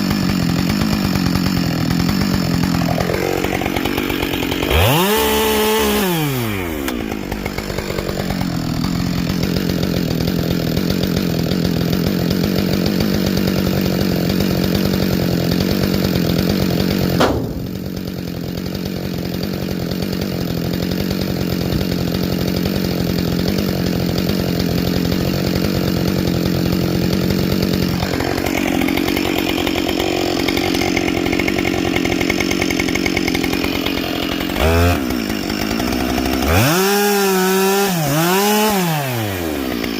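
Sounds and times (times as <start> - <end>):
chainsaw cutting wood: 0.0 - 39.9
sharp crack: 17.0 - 18.9.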